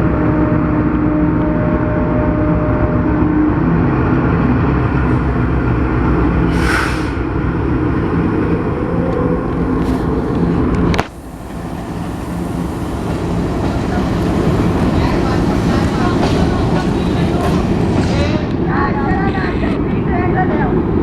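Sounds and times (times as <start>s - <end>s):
locomotive engine rumble: 0.0s - 21.0s
short hiss: 6.5s - 7.2s.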